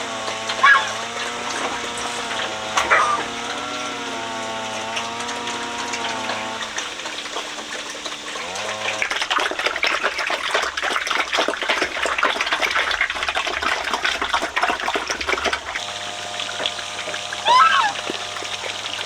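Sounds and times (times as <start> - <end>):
water gushing and splashing: 0.0 - 19.0
humming tone shifting pitch: 0.3 - 6.8, 17.4 - 18.5.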